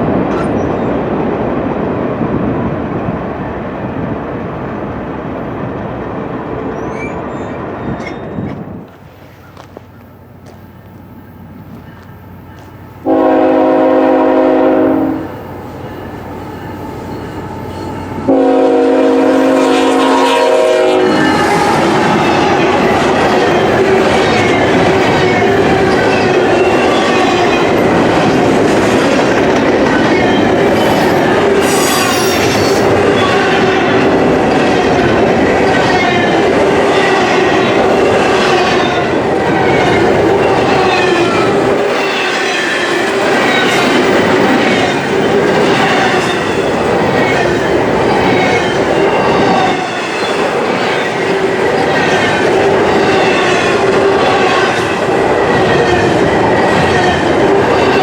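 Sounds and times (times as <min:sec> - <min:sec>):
freight train cars rolling: 0:00.0 - 0:58.0
wavering wheel squeals: 0:06.6 - 0:09.7, 0:15.8 - 0:18.3, 0:30.0 - 0:33.4.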